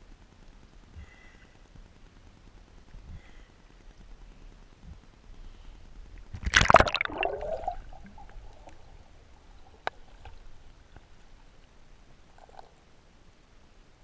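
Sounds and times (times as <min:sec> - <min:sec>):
rush of water: 0:06.3 - 0:13.2.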